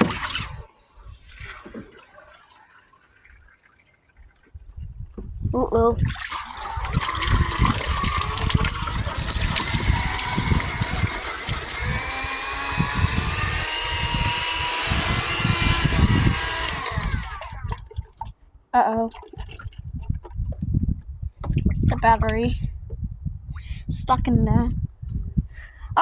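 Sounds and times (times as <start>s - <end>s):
water sloshing being sucked: 0.0s - 4.8s, 6.0s - 23.1s
vacuum cleaner motor whine: 7.4s - 17.7s.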